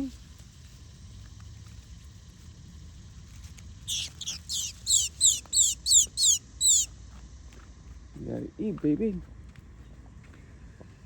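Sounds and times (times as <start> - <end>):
bird calling high notes: 3.9 - 6.9.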